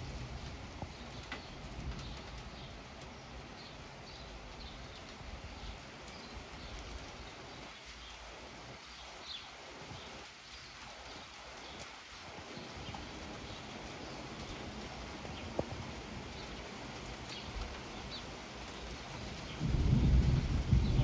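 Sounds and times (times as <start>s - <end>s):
rushing rain noise: 0.0s - 21.0s
low thunder rumble: 19.3s - 21.0s.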